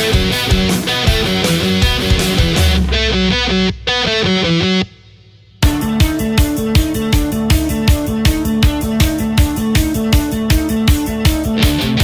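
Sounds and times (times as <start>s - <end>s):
fast music with driving beat: 0.0s - 4.8s, 5.6s - 12.0s.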